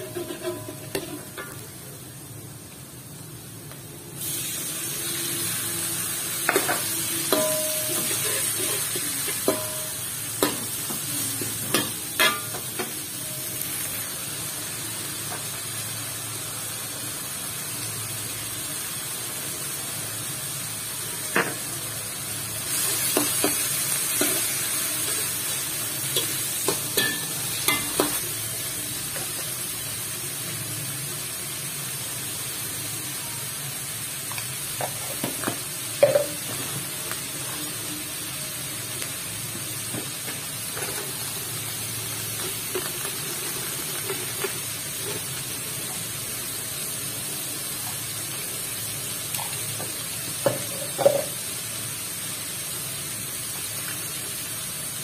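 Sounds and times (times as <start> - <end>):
metal spatula scraping a wok: 0.0 - 1.4
shrimp sizzling in a wok: 0.0 - 55.0.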